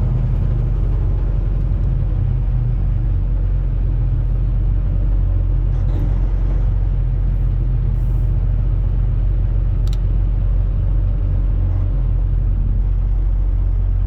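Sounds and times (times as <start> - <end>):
truck engine rumble: 0.0 - 14.0
short click: 9.8 - 10.0.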